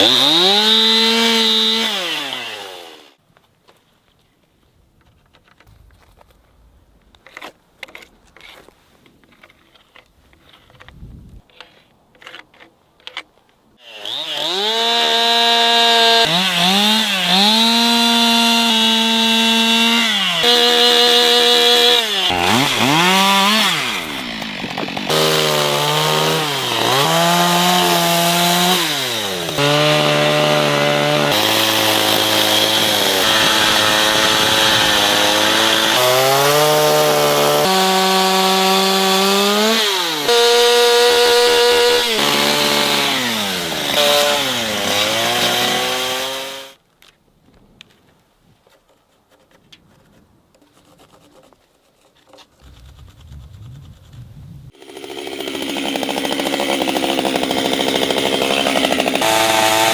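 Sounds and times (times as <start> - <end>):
chainsaw cutting wood: 0.0 - 3.2, 13.8 - 46.8, 54.7 - 59.9.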